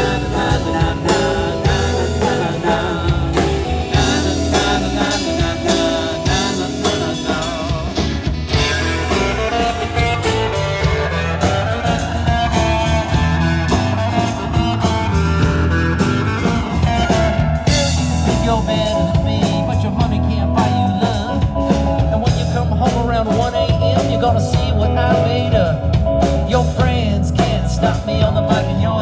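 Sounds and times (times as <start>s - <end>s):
guitar lines: 0.0s - 28.2s
steady drum beat: 0.0s - 28.9s
bass: 0.0s - 29.0s.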